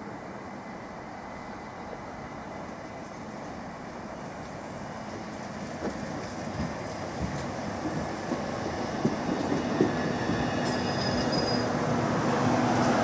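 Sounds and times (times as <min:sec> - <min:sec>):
electric train approaching: 0:00.0 - 0:13.0.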